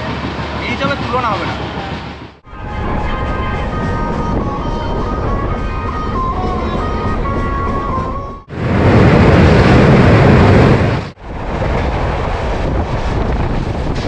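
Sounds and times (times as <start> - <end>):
moving train running noise: 0.0 - 14.0
music melody: 2.5 - 8.5.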